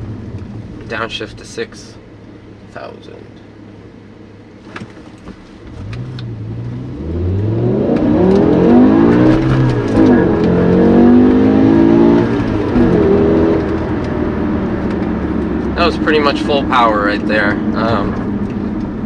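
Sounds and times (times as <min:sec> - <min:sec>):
car engine revving hard: 0:05.7 - 0:18.4.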